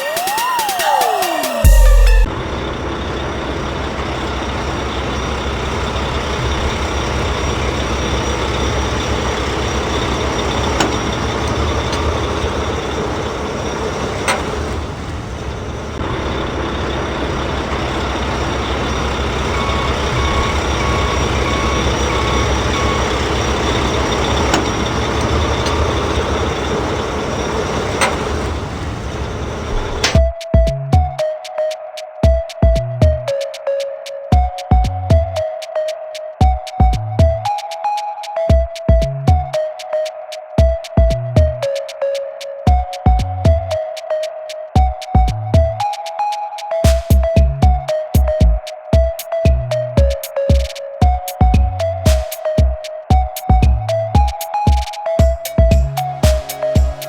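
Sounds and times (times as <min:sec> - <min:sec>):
reversing beeps: 0:00.0 - 0:31.2, 0:46.8 - 0:57.0
truck engine running: 0:01.6 - 0:30.2, 0:53.6 - 0:57.0.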